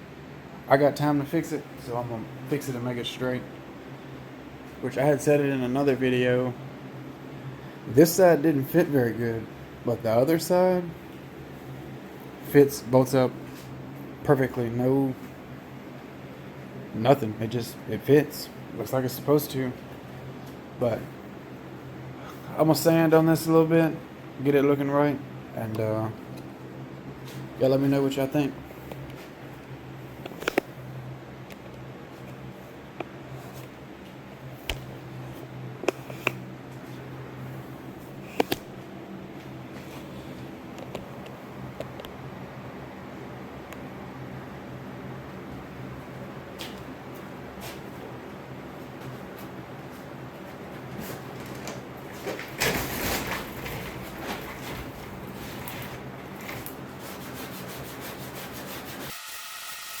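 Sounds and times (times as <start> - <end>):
steady low hum: 0.0 - 59.2
sanding rubbing on metal: 56.9 - 59.5.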